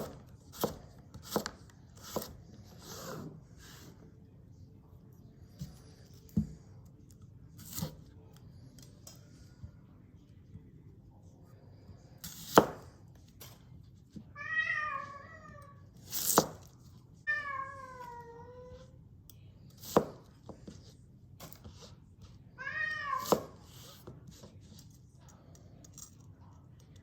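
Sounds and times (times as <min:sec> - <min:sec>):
knife chopping carrot: 0:00.0 - 0:03.3, 0:07.6 - 0:08.1, 0:12.2 - 0:12.9, 0:16.0 - 0:16.7, 0:19.8 - 0:20.9, 0:23.2 - 0:24.5
cat meowing: 0:14.4 - 0:15.8, 0:17.3 - 0:18.8, 0:22.6 - 0:23.5.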